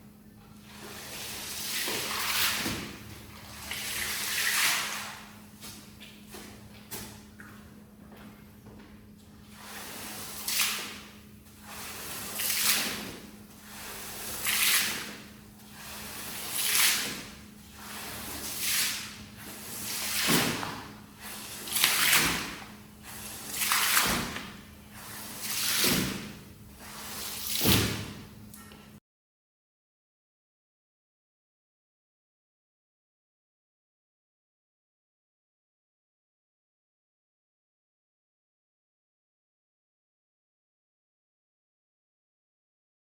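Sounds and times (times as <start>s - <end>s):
cleaning tool swishing across wet rug: 0.7s - 7.1s, 9.5s - 28.2s.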